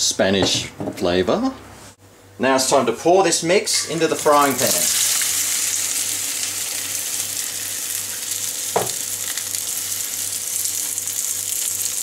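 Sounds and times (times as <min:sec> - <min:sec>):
food sizzling in a frying pan: 0:03.9 - 0:12.0.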